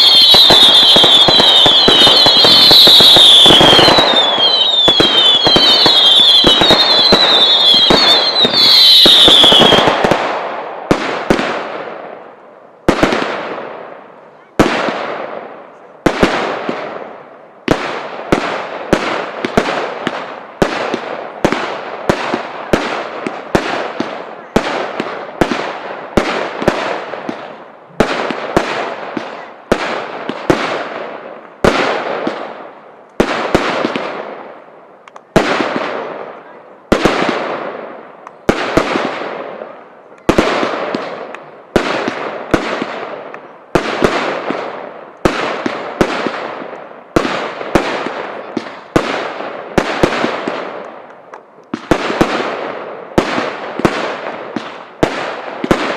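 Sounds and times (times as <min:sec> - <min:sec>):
screeching firework whistle: 0:00.0 - 0:09.9
fireworks bangs echoing: 0:00.0 - 0:55.9
fireworks crackling: 0:00.0 - 0:55.9.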